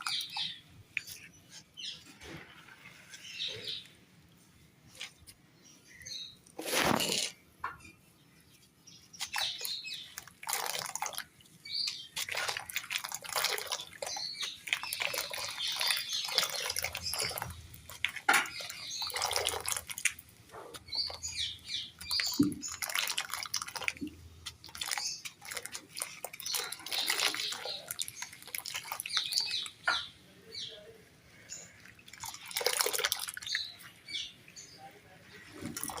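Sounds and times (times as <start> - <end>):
wet crackling and crunching: 0.0 - 1.2, 6.4 - 7.4, 9.1 - 30.1, 31.4 - 34.3, 35.4 - 36.0.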